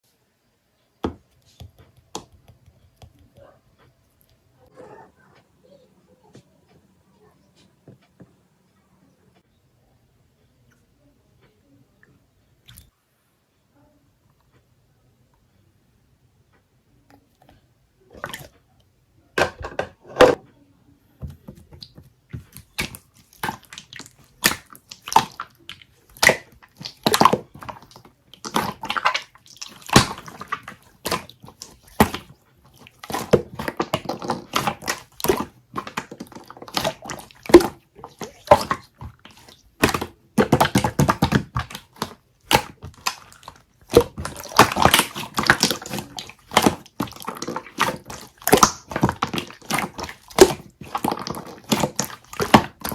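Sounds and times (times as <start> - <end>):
slime squeezed with sticky pops: 21.7 - 52.9.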